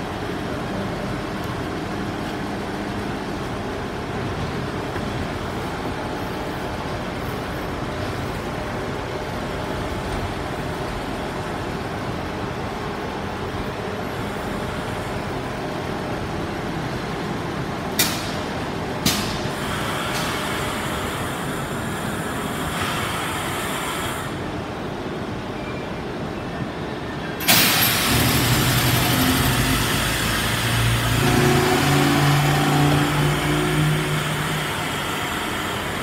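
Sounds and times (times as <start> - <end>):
train rolling with steady rumble: 0.0 - 36.0
brakes hissing or squealing: 27.2 - 36.0.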